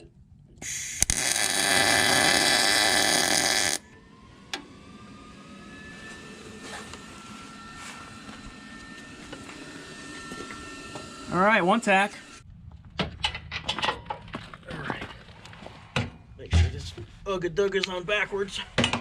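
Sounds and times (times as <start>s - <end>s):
steady hum: 0.0s - 12.7s
welding arc crackling: 0.6s - 3.8s.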